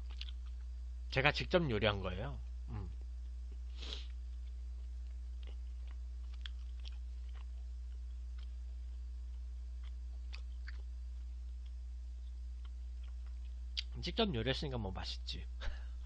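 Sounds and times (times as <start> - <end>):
person chewing: 0.0 - 0.7, 2.7 - 13.9
steady low hum: 0.0 - 16.0.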